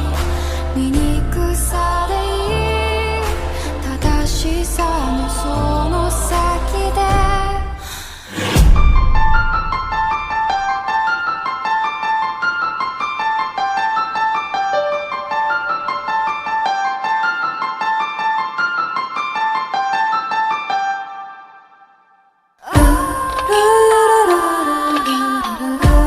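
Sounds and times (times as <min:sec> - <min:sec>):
low sustained bass: 0:00.0 - 0:07.8
piano-like keyboard repeated notes: 0:10.6 - 0:21.8, 0:22.8 - 0:26.0.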